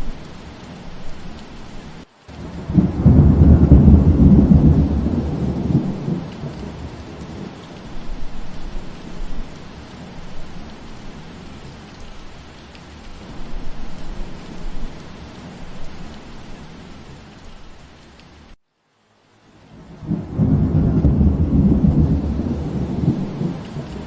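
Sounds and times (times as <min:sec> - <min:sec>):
steady rain: 0:00.0 - 0:24.0
thunder rumble: 0:02.3 - 0:11.5, 0:19.8 - 0:24.0.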